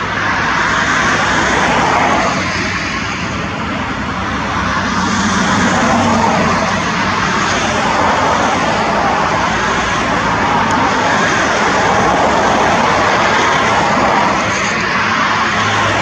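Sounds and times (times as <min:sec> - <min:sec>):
loud jet engine: 0:00.0 - 0:16.0.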